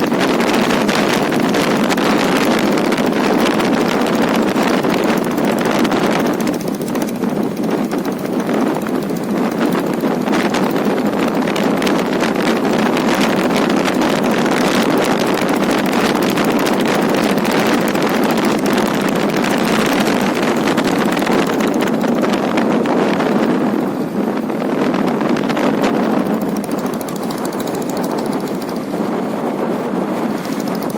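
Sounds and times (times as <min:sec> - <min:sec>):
diesel engine chugging: 0:00.0 - 0:22.9
wind on microphone: 0:00.0 - 0:30.9.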